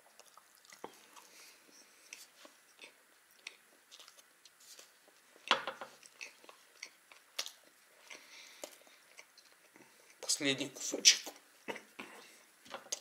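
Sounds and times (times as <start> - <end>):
person chewing with wet mouth clicks: 0.0 - 1.4.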